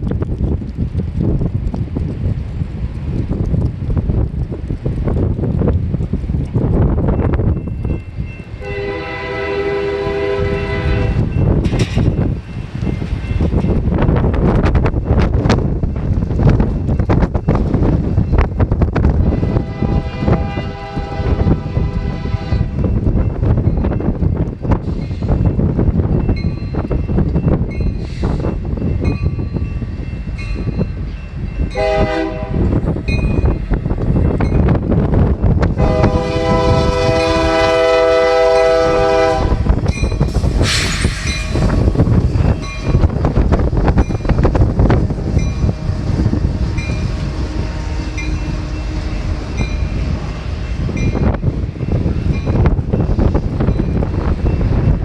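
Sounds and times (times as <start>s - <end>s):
train rumble: 0.0s - 55.0s
wind buffeting microphone: 0.0s - 55.0s
locomotive horn blasts: 8.6s - 11.3s, 19.2s - 22.8s, 31.8s - 32.7s, 35.8s - 39.7s, 45.7s - 50.1s.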